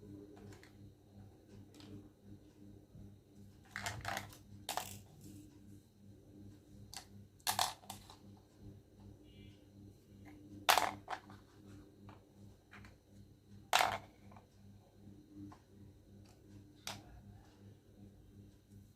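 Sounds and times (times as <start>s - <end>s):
steady low hum: 0.0s - 18.9s
plastic toy pieces clicking: 7.0s - 8.2s.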